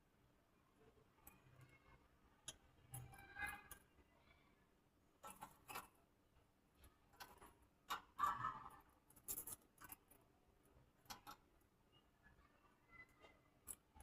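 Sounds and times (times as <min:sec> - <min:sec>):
birds clicking and scratching in cage: 0:05.2 - 0:06.0, 0:07.1 - 0:10.3, 0:11.0 - 0:11.6.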